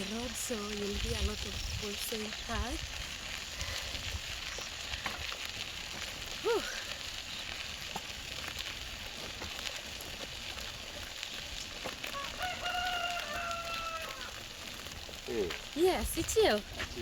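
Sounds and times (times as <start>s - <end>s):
steady hiss: 0.0s - 17.0s
rooster crowing: 12.0s - 14.4s.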